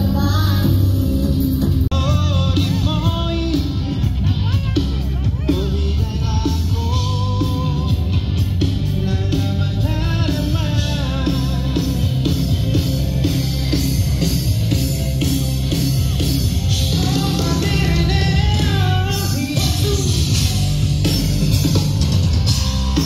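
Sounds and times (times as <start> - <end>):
amplified guitars: 0.0 - 23.0
drums beating: 0.0 - 23.0
person singing: 1.9 - 13.7, 16.7 - 23.0.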